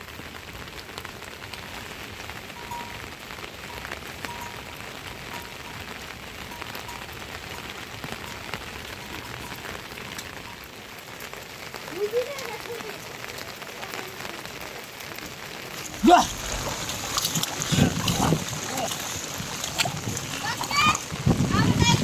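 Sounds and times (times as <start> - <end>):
raindrops ticking close by: 0.0 - 22.0
rain hissing: 11.6 - 22.0.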